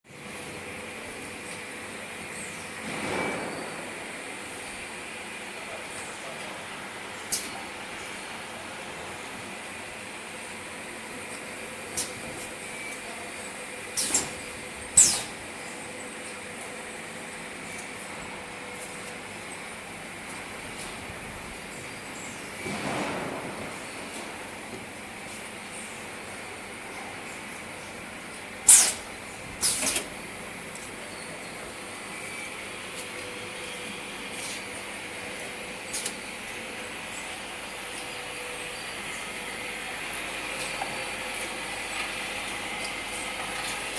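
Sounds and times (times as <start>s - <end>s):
machinery humming: 0.1s - 43.9s
compressed air hisses: 28.7s - 29.9s.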